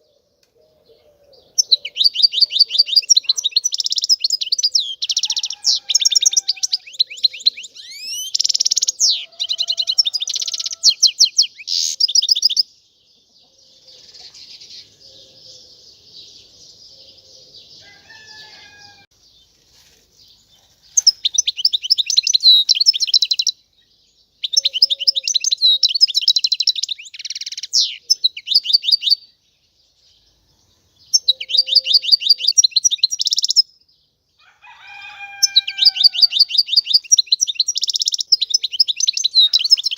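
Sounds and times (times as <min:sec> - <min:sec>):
goldfinch singing: 0:01.4 - 0:12.7, 0:20.9 - 0:29.3, 0:31.0 - 0:33.7, 0:35.2 - 0:39.9.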